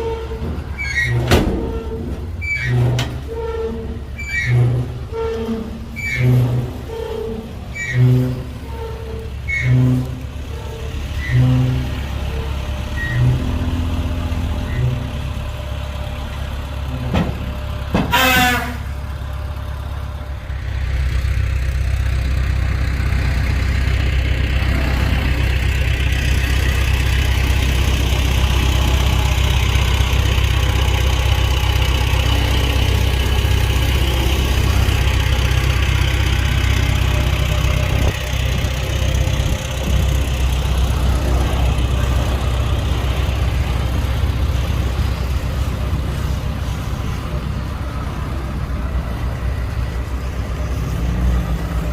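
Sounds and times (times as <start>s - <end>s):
diesel earthmoving machinery running: 0.0s - 51.9s
loud horn-like ring: 18.1s - 18.9s.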